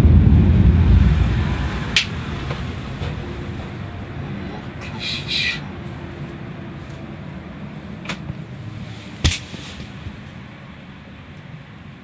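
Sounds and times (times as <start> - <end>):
car wash rumbling: 0.0 - 12.0
sharp knock: 9.2 - 9.5.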